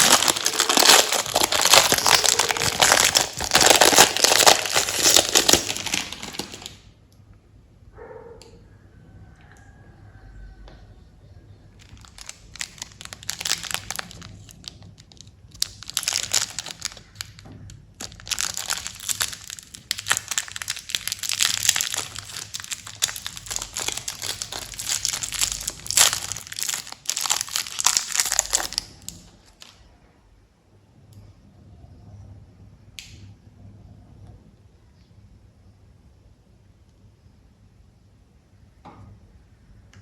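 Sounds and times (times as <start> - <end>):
candy wrappers crinkling: 0.0 - 6.8, 11.8 - 29.9.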